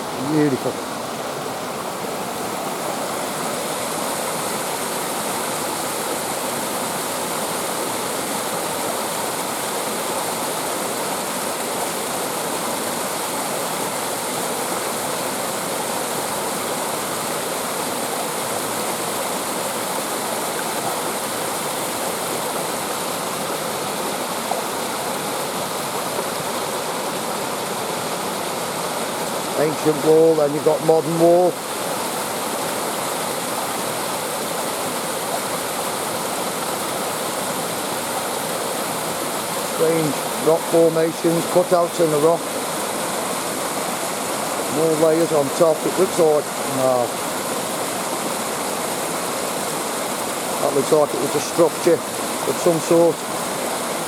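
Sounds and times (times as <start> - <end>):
waterfall pouring and splashing: 0.0 - 54.0.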